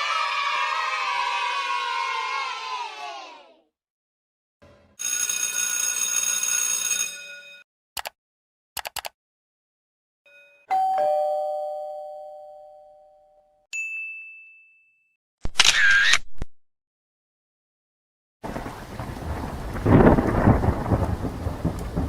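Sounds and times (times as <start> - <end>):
short clicks: 8.0 - 8.2, 8.8 - 9.2
short high ding: 10.3 - 13.1, 13.7 - 15.1
ding-dong doorbell chime: 10.3 - 15.2.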